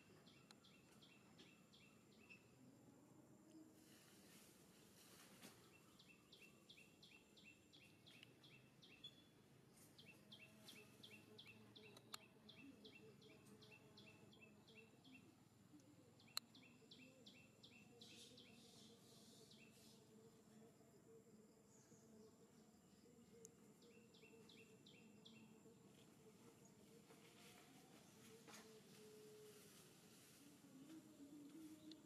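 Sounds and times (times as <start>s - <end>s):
bird chirping: 0.0s - 2.6s, 5.4s - 20.2s, 21.7s - 29.8s
faint outdoor ambience: 0.0s - 32.0s.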